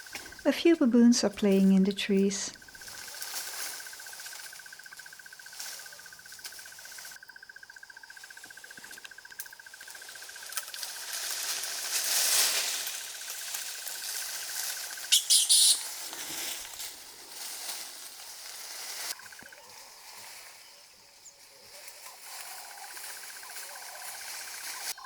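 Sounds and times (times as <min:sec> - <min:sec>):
insect trilling: 0:02.0 - 0:21.3
loud high-pitched bursts: 0:15.1 - 0:15.9.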